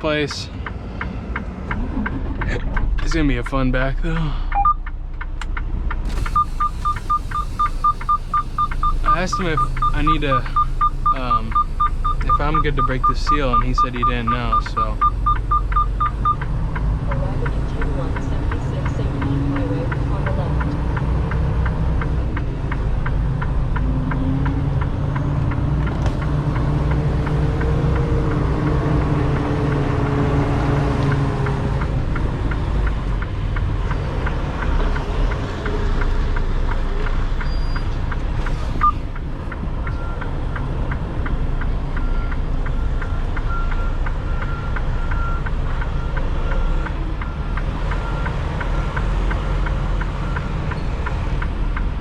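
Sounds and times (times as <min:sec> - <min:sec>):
diesel truck engine rumbling: 0:00.0 - 0:52.0
faint high beeps: 0:06.3 - 0:16.5, 0:38.8 - 0:39.0.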